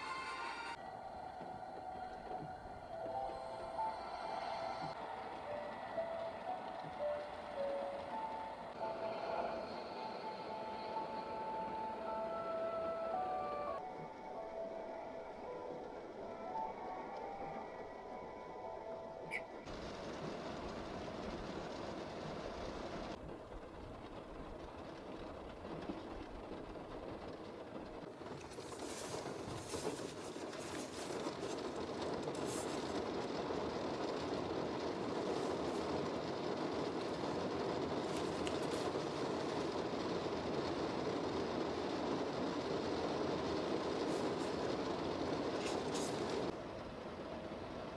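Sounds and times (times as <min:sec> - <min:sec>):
heavy rain falling: 0:24.2 - 0:47.9.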